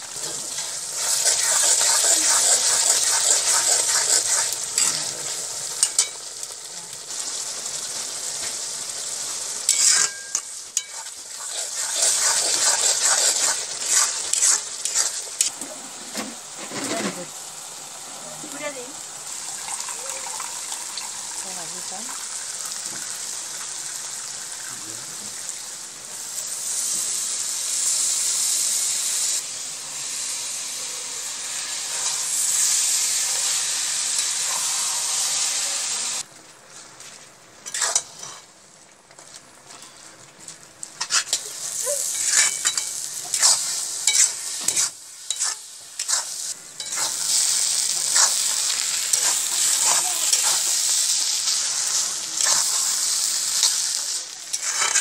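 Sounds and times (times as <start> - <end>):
fish mixture sizzling in pan: 0.0 - 55.0
metal spatula scraping pan: 9.7 - 17.3, 37.6 - 38.5, 42.1 - 50.6, 54.5 - 55.0.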